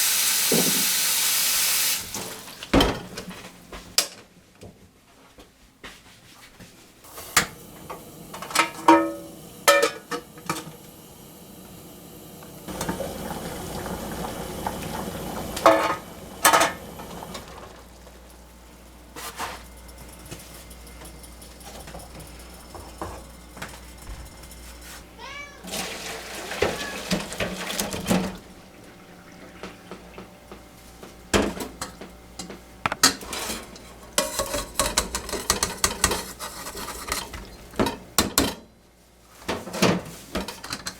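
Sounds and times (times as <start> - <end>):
kitchen utensils and pots clinking: 7.1 - 10.8, 12.7 - 18.0, 25.6 - 28.4, 31.3 - 38.7, 39.5 - 40.9
cat meowing: 25.2 - 25.7, 26.6 - 27.1.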